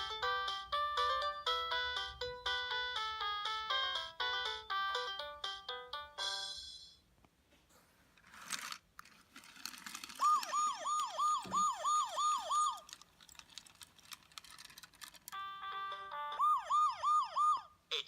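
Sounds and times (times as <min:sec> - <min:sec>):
toy police siren swoops: 0:10.2 - 0:13.0, 0:16.1 - 0:17.7.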